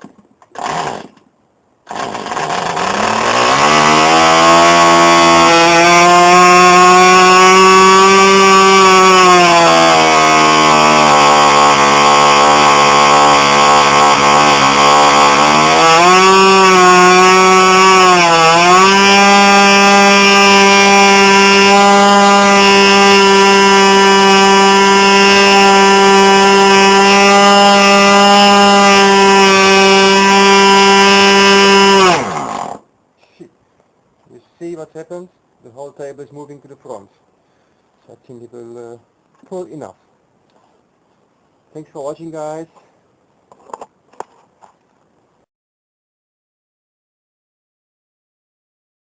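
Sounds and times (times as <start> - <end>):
model aircraft engine at high revs: 1.9 - 5.2.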